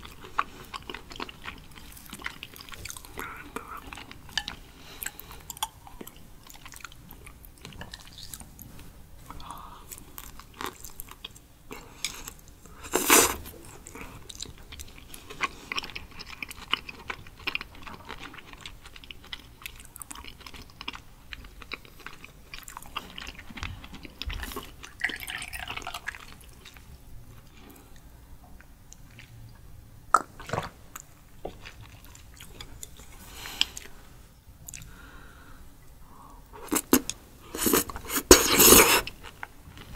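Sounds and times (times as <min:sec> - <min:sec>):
person chewing with mouth clicks: 0:34.6 - 0:35.0.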